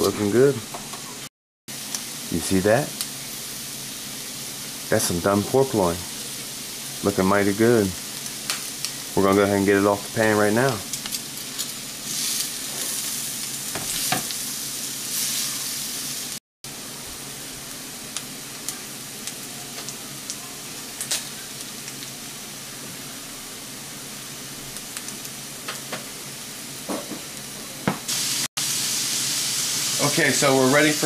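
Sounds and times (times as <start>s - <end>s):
green beans frying with pops: 0.0s - 31.0s
meat sizzling on a grill pan: 0.0s - 31.0s.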